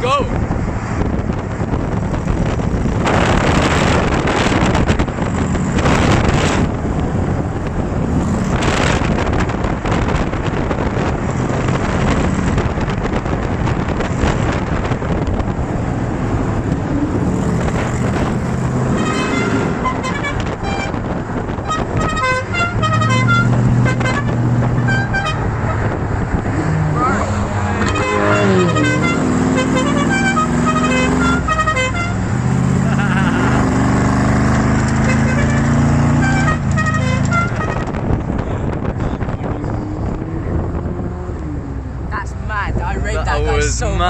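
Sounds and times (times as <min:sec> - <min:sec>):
short car horn toots: 0:19.0 - 0:21.0, 0:35.0 - 0:37.9
cars accelerating in tunnel: 0:22.4 - 0:42.2.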